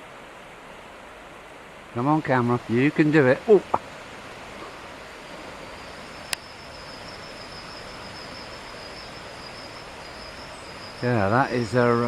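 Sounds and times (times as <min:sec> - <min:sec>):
faint high-pitched whine: 0:00.0 - 0:12.0
outdoor background noise: 0:00.0 - 0:12.0.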